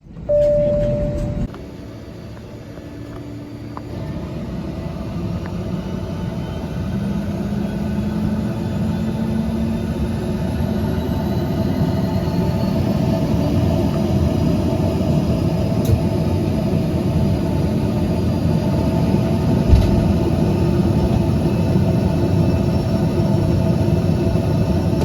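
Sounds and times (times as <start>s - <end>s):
turboprop engines rumbling in cabin: 0.0s - 25.0s
loud steady tone: 0.2s - 1.5s.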